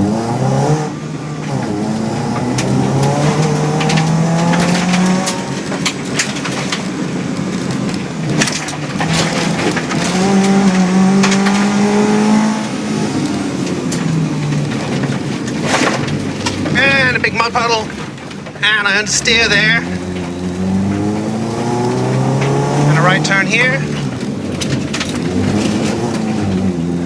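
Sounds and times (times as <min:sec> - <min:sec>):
rally car engine accelerating: 0:00.0 - 0:27.0
sharp knocks from road surface: 0:07.7 - 0:12.0, 0:13.6 - 0:16.8.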